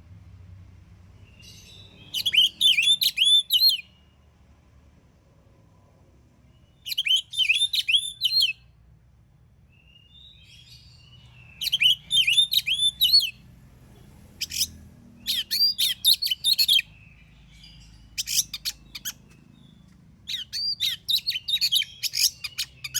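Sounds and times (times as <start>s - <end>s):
songbird whistling: 1.2s - 4.0s, 6.6s - 8.6s, 9.8s - 13.4s, 14.4s - 22.9s.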